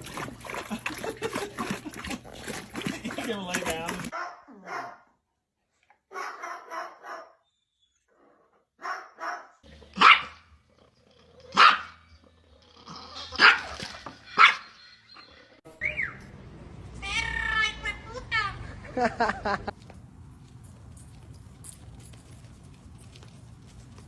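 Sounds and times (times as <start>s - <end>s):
dog barking: 4.1s - 5.2s, 6.1s - 7.4s, 8.8s - 10.5s, 11.5s - 12.0s, 13.4s - 14.7s.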